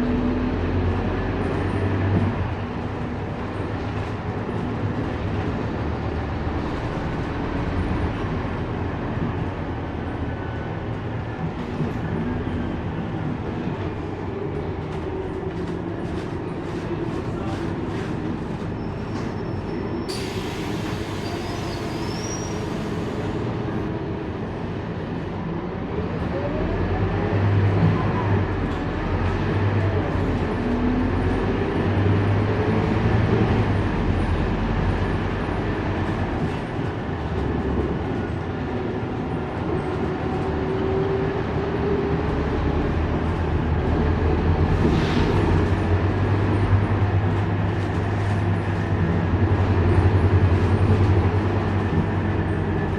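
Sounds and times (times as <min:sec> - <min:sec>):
bus engine rumble and whine: 0:00.0 - 0:52.9.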